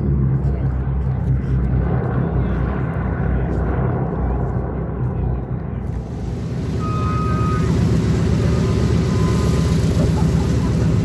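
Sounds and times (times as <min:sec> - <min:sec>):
aircraft engine drone: 0:00.0 - 0:11.0.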